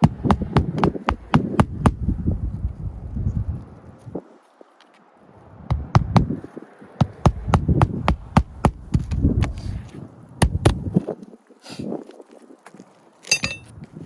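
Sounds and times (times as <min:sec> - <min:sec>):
sharp knocks on shingle roof: 0:00.0 - 0:02.1, 0:05.7 - 0:06.4, 0:07.0 - 0:09.6, 0:10.4 - 0:10.9.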